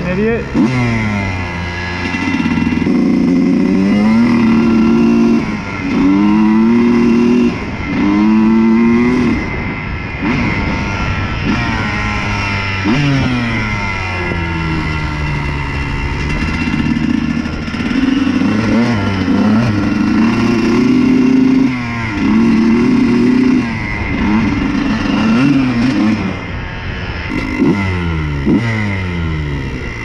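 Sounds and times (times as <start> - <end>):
two-stroke engine revving: 0.0 - 30.0.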